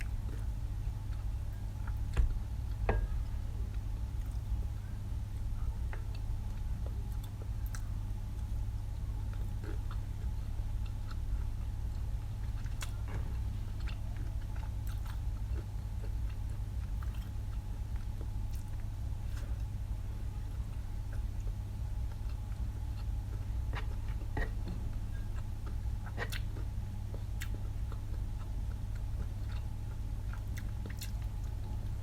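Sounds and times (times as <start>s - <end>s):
person chewing and biting: 11.9s - 19.6s, 22.1s - 31.6s.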